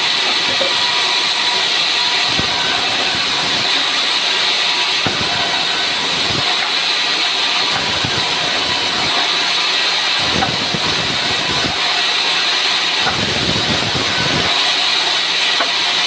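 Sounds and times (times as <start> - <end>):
saw cutting through wood: 0.0 - 16.0
machine running: 10.2 - 12.0.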